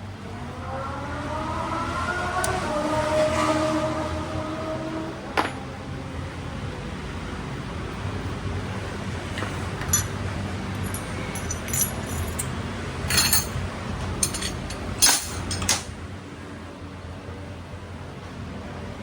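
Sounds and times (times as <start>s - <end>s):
metal tools clinking and rattling: 5.4s - 5.6s, 9.4s - 15.9s.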